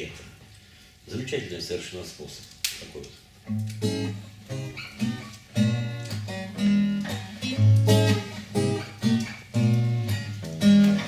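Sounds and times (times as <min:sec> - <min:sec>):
acoustic guitar strumming chords: 0:03.5 - 0:11.0.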